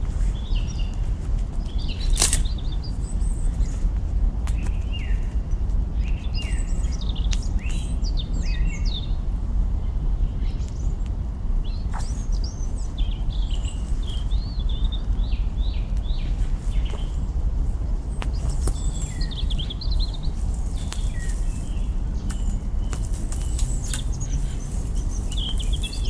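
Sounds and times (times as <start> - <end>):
small birds chirping: 0.0 - 26.0
steady low rumbling noise: 0.0 - 26.0
campfire branches crackling: 1.0 - 2.7, 15.9 - 26.0.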